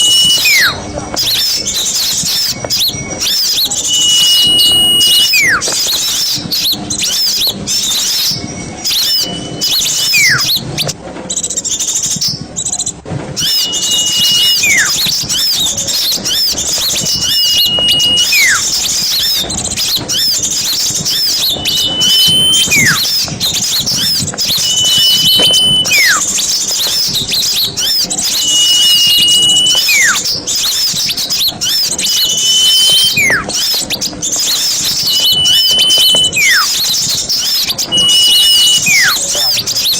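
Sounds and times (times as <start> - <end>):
whistle sliding downward: 0.0 - 11.0, 13.4 - 39.9
songbirds chirping: 0.0 - 39.9.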